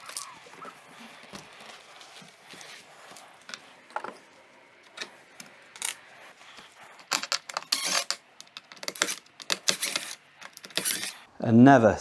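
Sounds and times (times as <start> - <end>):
metal parts clicking and clinking: 4.8 - 11.3.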